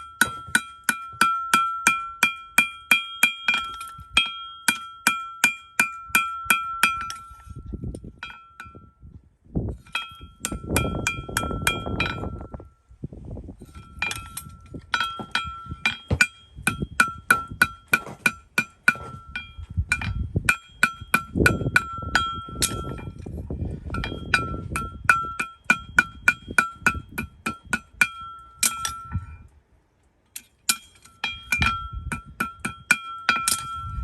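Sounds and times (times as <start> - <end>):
hammer striking steel: 0.0 - 7.4, 13.7 - 23.2, 23.9 - 29.1, 30.4 - 34.0.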